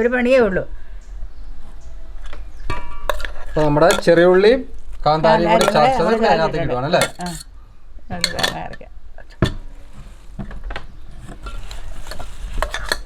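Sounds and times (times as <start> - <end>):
utensil scraping cooking pot: 3.1 - 10.4, 11.2 - 13.0.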